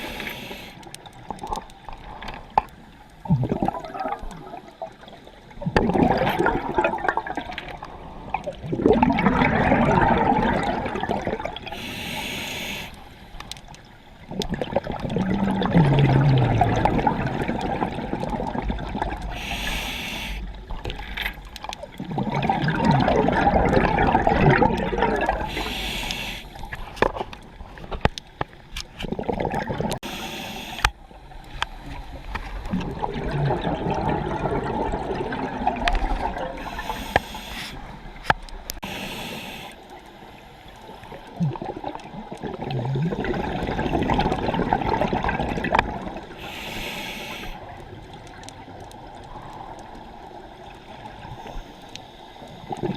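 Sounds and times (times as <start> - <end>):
regulator hiss on inhale: 0.0 - 0.9, 11.6 - 13.6, 19.2 - 20.8, 25.4 - 27.0, 30.0 - 32.8, 36.6 - 41.3, 46.2 - 47.8, 50.4 - 52.7
exhaled air bubbling: 0.0 - 52.9.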